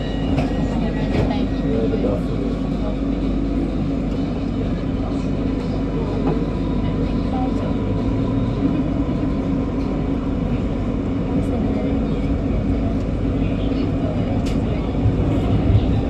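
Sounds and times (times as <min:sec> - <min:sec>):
metro train interior noise: 0:00.0 - 0:16.0.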